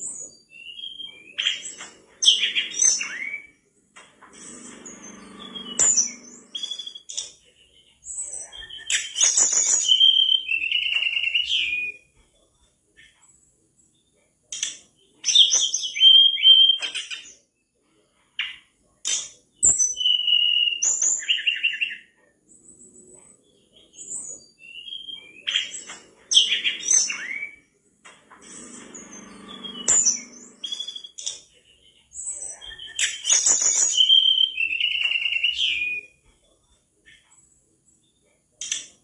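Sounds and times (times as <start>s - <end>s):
bird singing whistles and trills: 0.0s - 3.6s, 4.4s - 7.4s, 8.1s - 12.1s, 15.1s - 17.3s, 19.6s - 22.2s, 23.5s - 27.8s, 28.4s - 36.2s.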